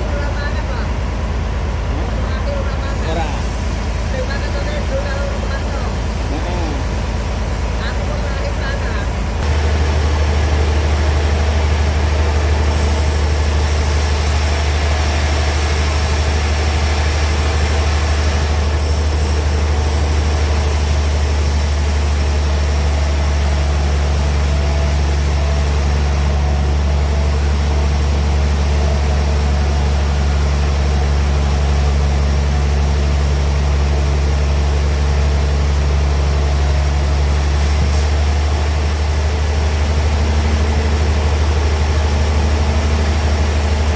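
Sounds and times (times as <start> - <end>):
sawmill machinery humming: 0.0 - 43.9.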